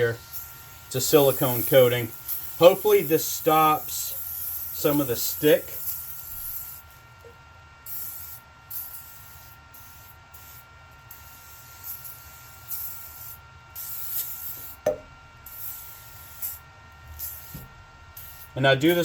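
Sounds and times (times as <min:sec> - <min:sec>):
aerosol can spraying hissing bursts: 0:00.0 - 0:06.9, 0:07.8 - 0:19.0
sharp knock: 0:14.8 - 0:15.1.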